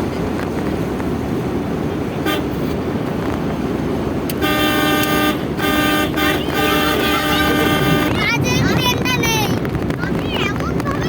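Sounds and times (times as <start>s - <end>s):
road and engine noise: 0.0s - 11.0s
vehicle horn honking: 2.2s - 2.6s, 4.3s - 8.2s.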